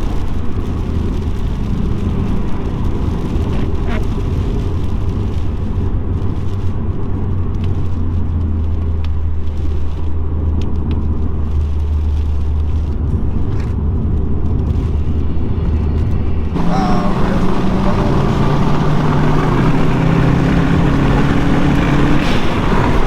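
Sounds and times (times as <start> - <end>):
tyres on wet road: 0.0 - 23.0
car engine droning: 10.6 - 23.0.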